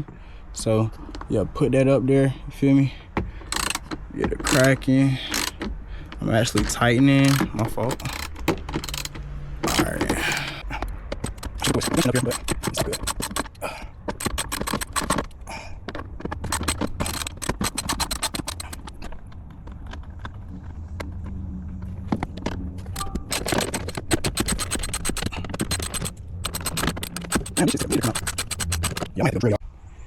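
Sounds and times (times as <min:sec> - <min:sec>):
hand ratchet clicking: 0:03.4 - 0:05.7, 0:06.4 - 0:10.6, 0:11.2 - 0:15.6, 0:16.2 - 0:19.0, 0:22.9 - 0:29.3.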